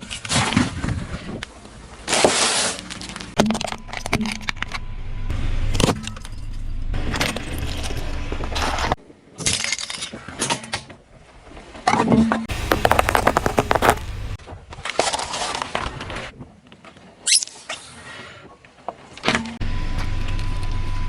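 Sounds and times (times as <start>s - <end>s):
tyre and engine rumble: 12.5s - 14.4s
tyres crushing objects: 12.5s - 14.4s.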